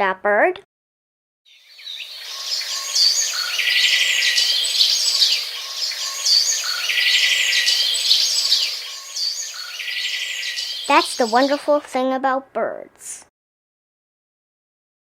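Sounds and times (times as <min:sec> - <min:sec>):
birds chirping and whistling: 0:01.5 - 0:11.7
steady outdoor hiss: 0:01.5 - 0:12.0.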